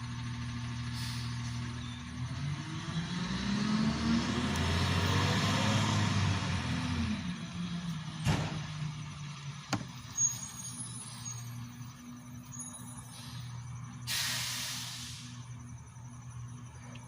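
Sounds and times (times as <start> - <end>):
vehicle engine humming: 0.0 - 17.0
short hiss: 14.1 - 15.4.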